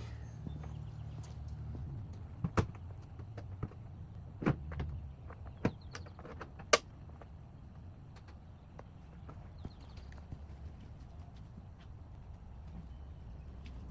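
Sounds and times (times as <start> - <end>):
sharp clicks and knocks: 0.0 - 10.3.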